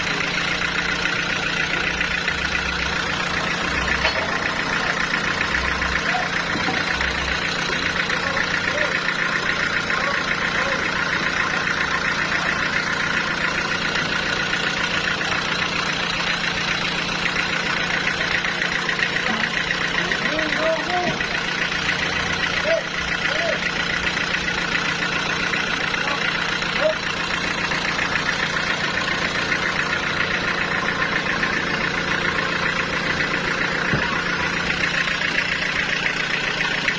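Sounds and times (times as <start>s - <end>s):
sawmill machinery running: 0.0s - 36.9s.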